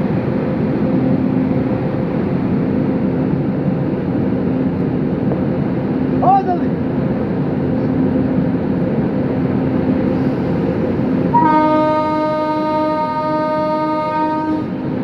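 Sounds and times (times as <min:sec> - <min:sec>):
locomotive engine rumble: 0:00.0 - 0:15.0
locomotive horn blast: 0:11.3 - 0:14.8.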